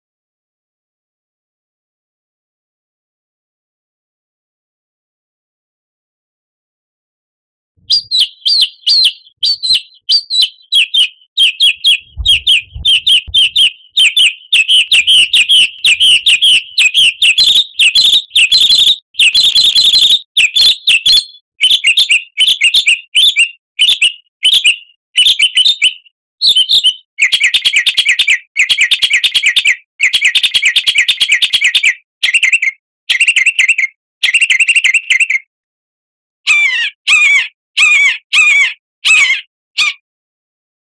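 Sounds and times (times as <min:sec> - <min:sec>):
songbird chirps and trills: 0:07.8 - 0:32.6.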